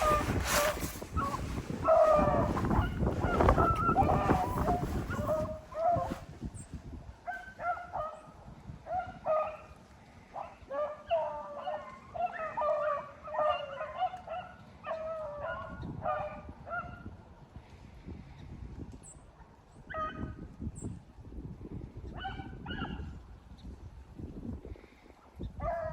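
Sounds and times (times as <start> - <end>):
hounds baying: 0.0 - 6.2, 7.2 - 17.0
wind buffeting microphone: 0.0 - 12.2, 13.6 - 25.9.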